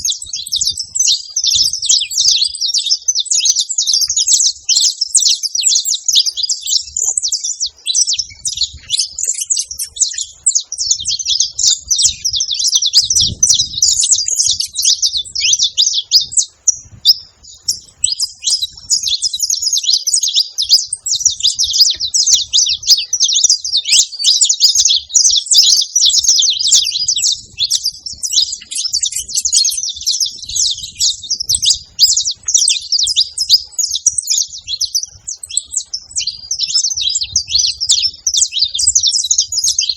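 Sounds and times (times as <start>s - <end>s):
finch singing high chirps and trills: 0.0s - 39.9s.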